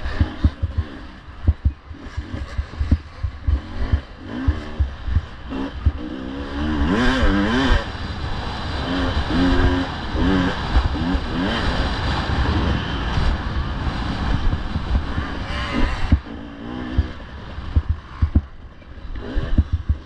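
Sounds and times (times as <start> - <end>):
dirt bike engine revving: 0.0 - 20.0
low thumps and knocks: 0.1 - 6.0, 14.3 - 16.3, 17.0 - 18.6, 19.4 - 20.0.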